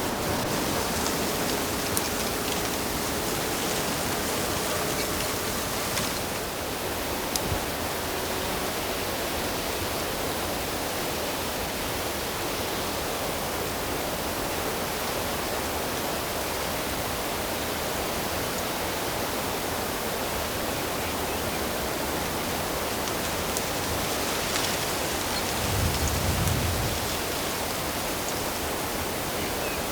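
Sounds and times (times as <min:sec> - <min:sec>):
flowing water rushing: 0:00.0 - 0:06.6.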